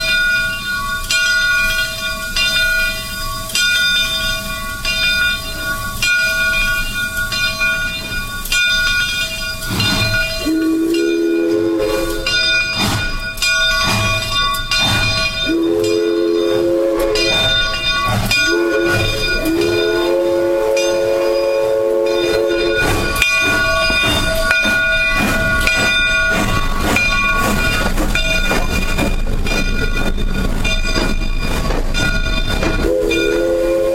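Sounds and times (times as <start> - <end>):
locomotive bell ringing: 0.0 - 33.9
steam whistle blasts: 10.0 - 12.9, 14.9 - 24.8, 32.8 - 33.9.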